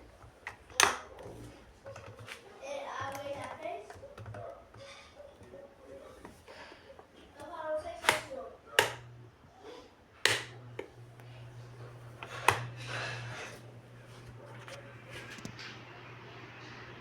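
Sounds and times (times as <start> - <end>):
desk fan switch clicking: 0.5 - 1.1, 8.0 - 9.2, 10.2 - 10.9, 12.2 - 12.8
electric motor humming: 10.3 - 15.5.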